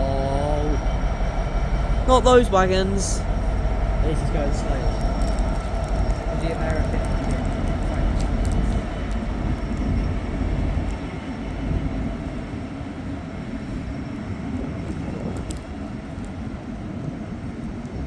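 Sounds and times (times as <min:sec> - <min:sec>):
freight train rolling past: 0:00.0 - 0:18.0
faint clicks: 0:04.9 - 0:10.1.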